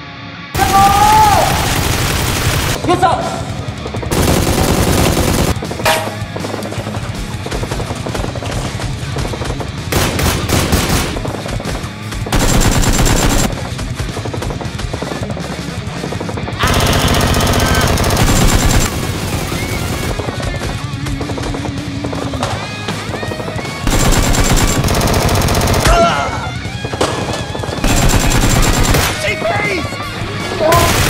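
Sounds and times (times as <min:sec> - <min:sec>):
music: 0:00.0 - 0:31.0
rapid automatic gunfire: 0:00.6 - 0:02.8, 0:04.0 - 0:05.7, 0:07.5 - 0:22.2, 0:23.8 - 0:26.1, 0:27.2 - 0:29.4, 0:30.7 - 0:31.0.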